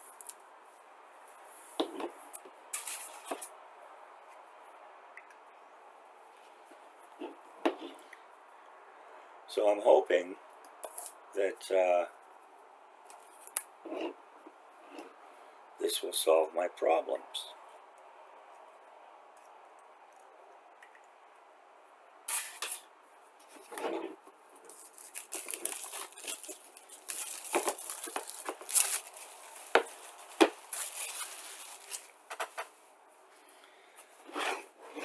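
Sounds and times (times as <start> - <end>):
box packaging rustling and scraping: 2.8 - 3.5, 23.4 - 32.8, 34.1 - 35.0.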